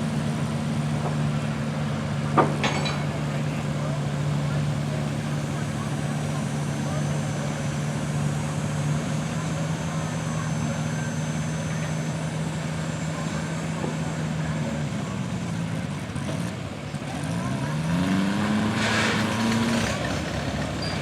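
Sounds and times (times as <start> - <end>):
garden tractor engine revving: 17.0 - 21.0.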